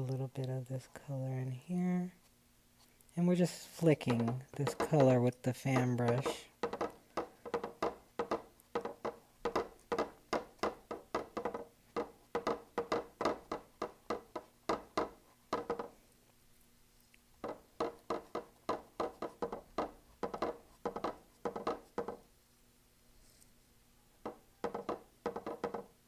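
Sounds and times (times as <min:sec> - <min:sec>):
brush tapping paint on canvas: 0:03.2 - 0:16.0, 0:17.4 - 0:22.4, 0:24.2 - 0:26.0.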